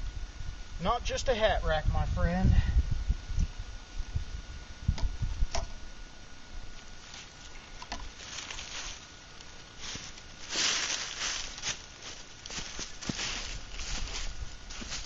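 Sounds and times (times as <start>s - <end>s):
footsteps rustling on ground: 6.9s - 15.0s
scuffing rustle: 7.0s - 7.5s, 8.1s - 15.0s.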